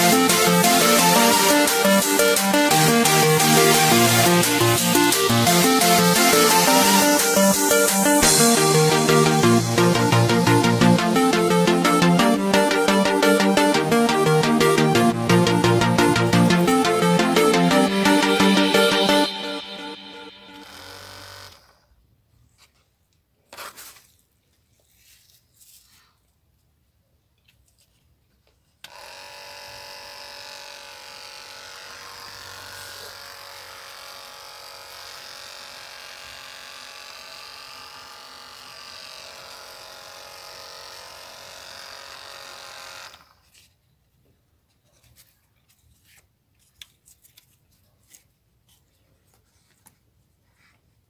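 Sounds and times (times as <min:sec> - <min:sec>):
small electric motor whining: 0:28.9 - 0:43.6.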